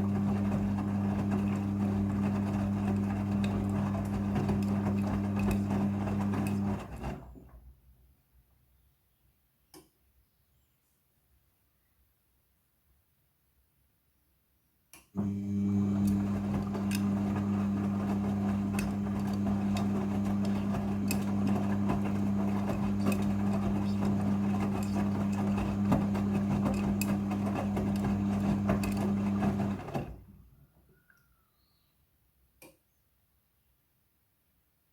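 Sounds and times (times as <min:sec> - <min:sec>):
washing machine running: 0:00.0 - 0:07.6, 0:15.2 - 0:30.4.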